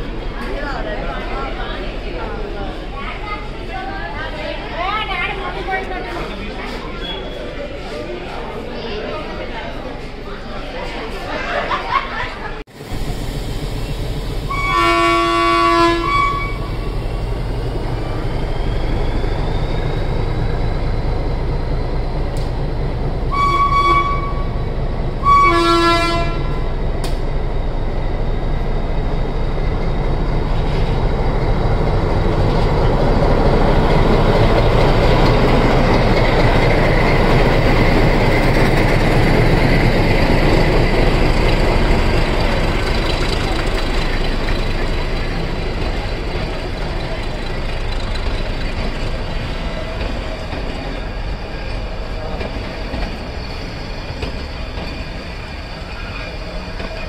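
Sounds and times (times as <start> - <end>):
train running rumble: 12.5 - 57.0
train horn blasts: 14.5 - 16.8, 23.3 - 24.6, 25.2 - 26.6.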